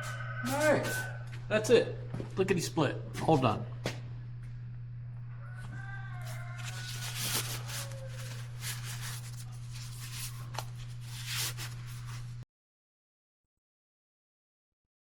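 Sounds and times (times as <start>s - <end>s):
steady low hum: 0.0s - 12.4s
rustling and handling noises: 5.6s - 12.4s.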